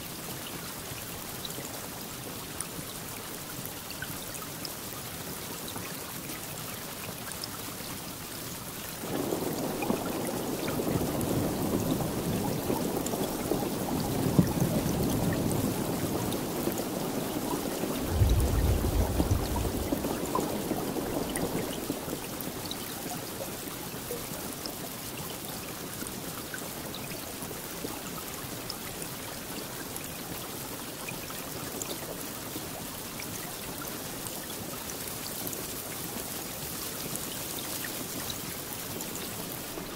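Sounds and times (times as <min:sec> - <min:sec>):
steady rainfall: 0:00.0 - 0:39.9
thunder rolling: 0:09.0 - 0:22.6.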